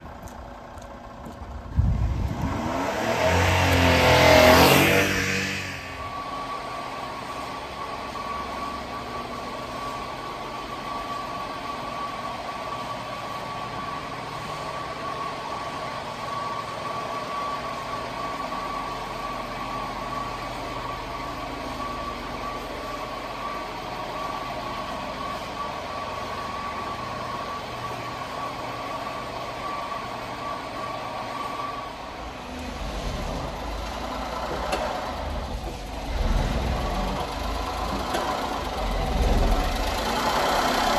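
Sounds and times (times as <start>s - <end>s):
small truck engine idling: 0.0s - 40.9s.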